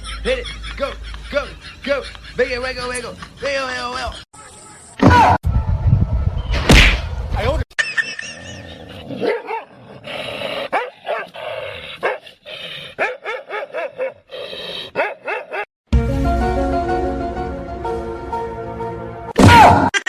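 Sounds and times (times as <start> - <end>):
dog barking and yipping: 9.1 - 9.7, 10.7 - 11.4, 12.0 - 12.3, 13.0 - 14.3, 14.9 - 15.7.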